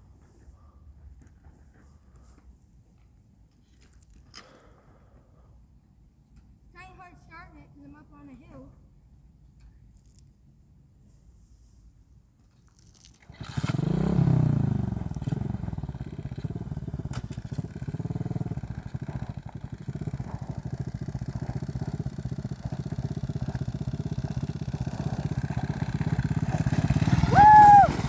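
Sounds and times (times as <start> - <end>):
motorbike engine revving: 13.3 - 28.0.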